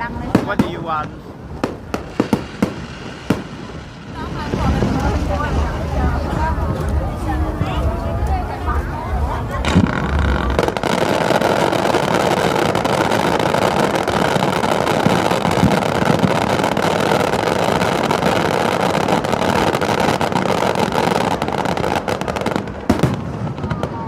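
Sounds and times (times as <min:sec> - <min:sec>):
fireworks crackling: 0:00.0 - 0:24.0
sharp firework bang: 0:09.6 - 0:16.7.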